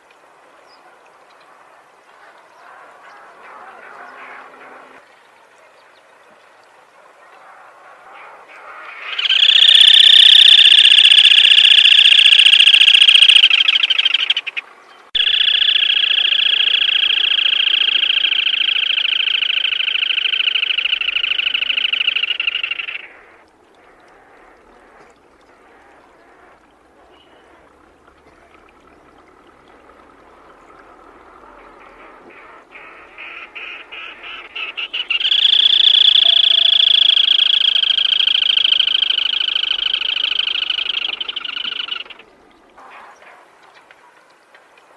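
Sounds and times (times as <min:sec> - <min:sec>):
bird ticking calls: 0:09.0 - 0:42.8
bird rattling trills: 0:09.2 - 0:14.6, 0:15.2 - 0:23.1, 0:34.9 - 0:42.2.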